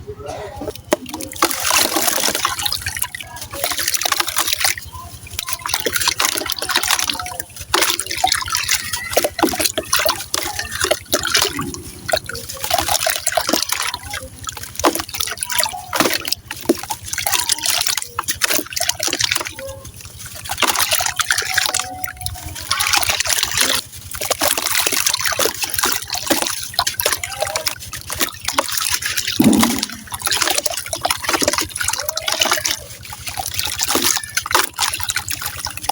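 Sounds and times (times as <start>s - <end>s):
water trickling and dripping: 0.7s - 35.9s
sand cement crumbling into water: 25.6s - 35.9s.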